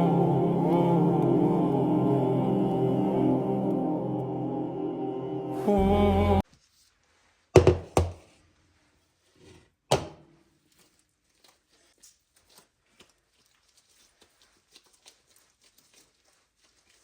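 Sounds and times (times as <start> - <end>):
dull knocks of hard objects: 7.6 - 8.2.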